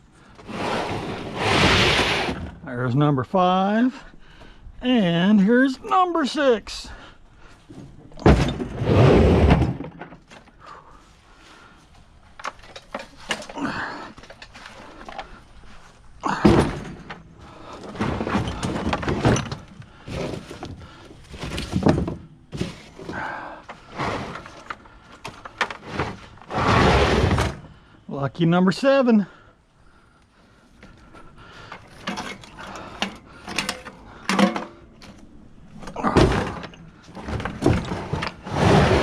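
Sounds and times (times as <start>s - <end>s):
scrap metal thunks and clanks: 7.6s - 10.7s, 16.3s - 27.8s, 31.6s - 39.0s.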